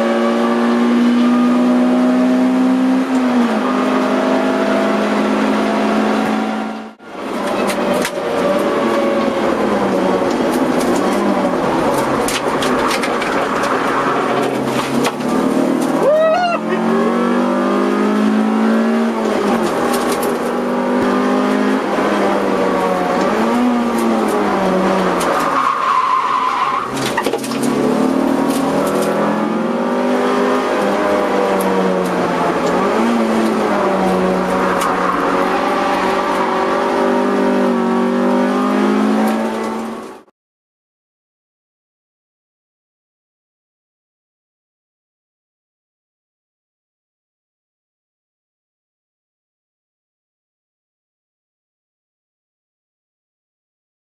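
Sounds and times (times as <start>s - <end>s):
car engine revving: 0.0s - 40.3s.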